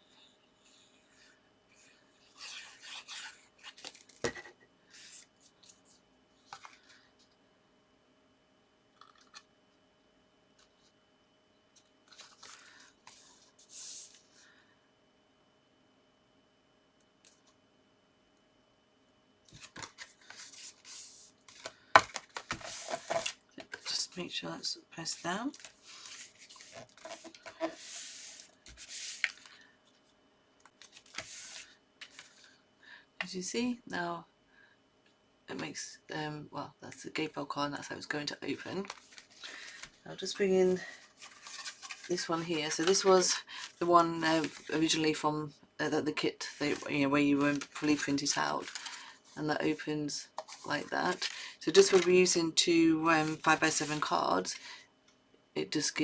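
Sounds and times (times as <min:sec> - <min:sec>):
paper rustling and sliding: 0:12.1 - 0:14.4, 0:19.5 - 0:23.9, 0:25.5 - 0:29.6, 0:30.8 - 0:32.6, 0:38.8 - 0:40.0, 0:40.8 - 0:44.9, 0:46.4 - 0:49.4, 0:50.5 - 0:52.1, 0:53.2 - 0:54.1
hand rubbing across card: 0:25.8 - 0:29.4, 0:31.0 - 0:32.3.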